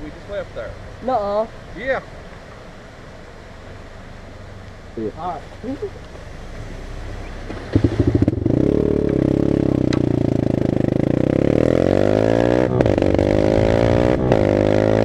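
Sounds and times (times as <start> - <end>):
dirt bike engine accelerating: 7.4 - 15.0.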